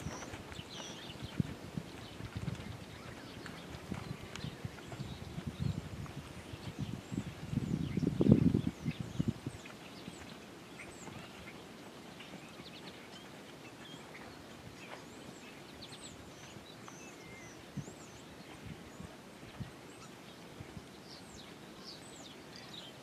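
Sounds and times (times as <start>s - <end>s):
faint outdoor hiss: 0.0s - 23.0s
small birds chirping: 0.0s - 23.0s.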